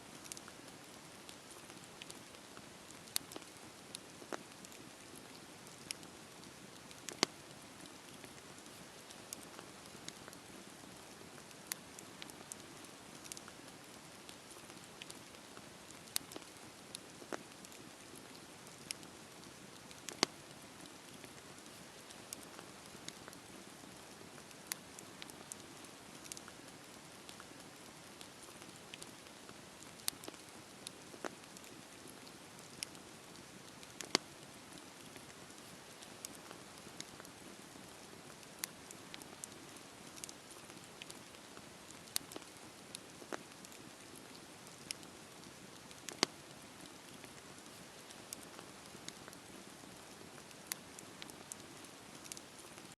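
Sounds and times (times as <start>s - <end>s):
campfire crackling and popping: 0.1s - 52.9s.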